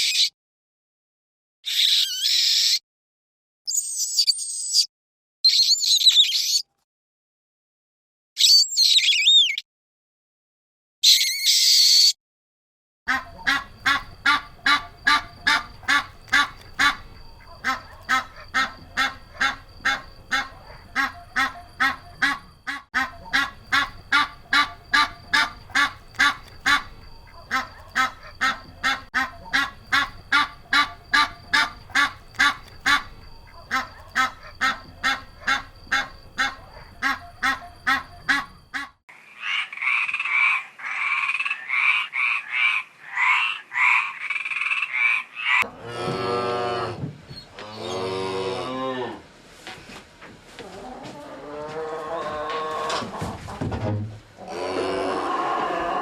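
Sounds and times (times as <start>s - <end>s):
animal pitched calls: 13.1s - 49.2s, 54.4s - 56.0s
croaking calls: 13.1s - 49.3s, 50.6s - 56.0s.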